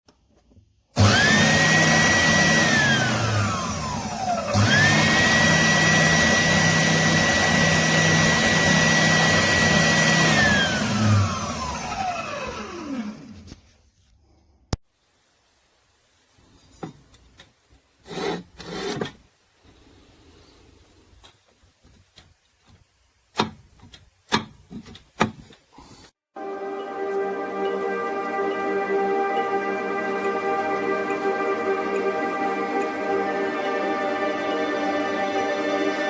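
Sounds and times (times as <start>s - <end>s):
sander motor whine: 1.0s - 13.5s, 26.4s - 36.0s.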